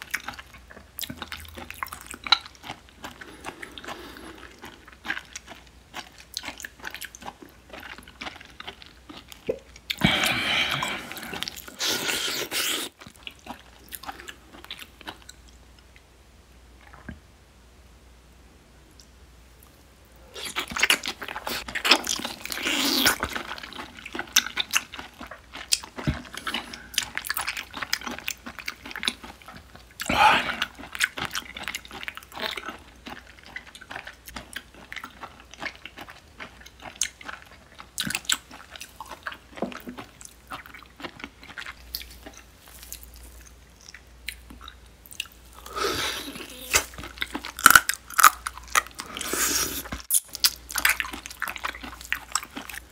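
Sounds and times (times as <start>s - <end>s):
wet chewing and slurping: 0.0s - 15.4s, 20.3s - 52.9s
squishy mouth clicks: 46.2s - 47.1s.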